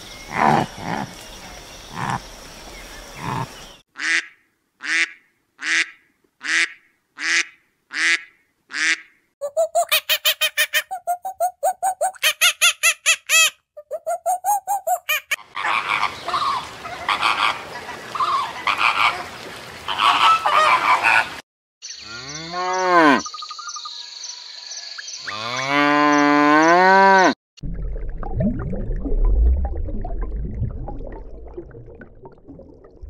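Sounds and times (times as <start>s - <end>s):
flamingos honking: 15.1s - 19.3s, 19.9s - 21.3s
cow mooing: 22.1s - 23.3s, 25.3s - 27.4s.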